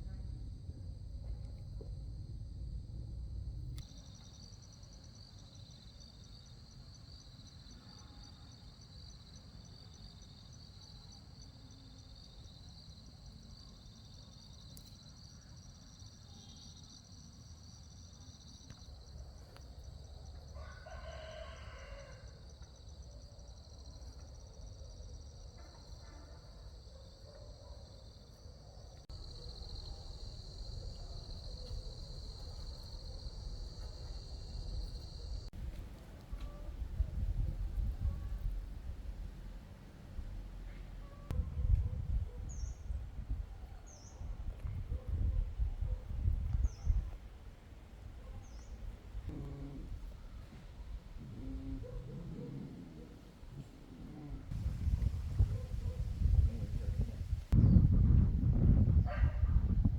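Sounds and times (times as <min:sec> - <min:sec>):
rooster crowing: 0:20.5 - 0:22.5.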